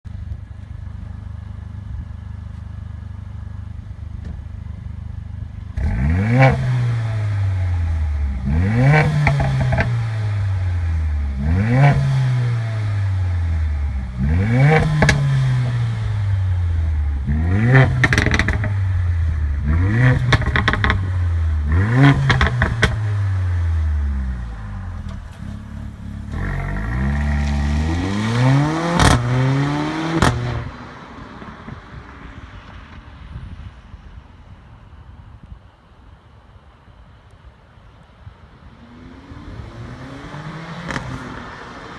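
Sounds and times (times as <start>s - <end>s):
exhaust popping and crackling: 0.0s - 10.7s, 13.5s - 30.7s
car engine revving: 3.6s - 30.8s, 38.8s - 41.9s.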